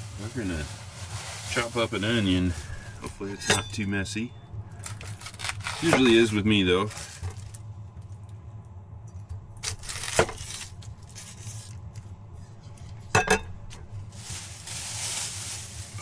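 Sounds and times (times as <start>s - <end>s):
steady low hum: 0.0s - 16.0s
kitchenware clinking and knocking: 3.2s - 3.8s, 13.1s - 13.8s.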